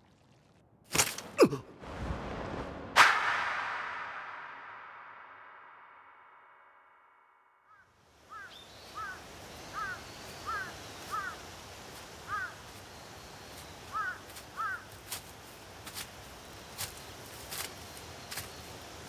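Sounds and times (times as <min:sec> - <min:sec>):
birds calling: 0:07.7 - 0:19.0
steady wind hiss: 0:08.0 - 0:19.0.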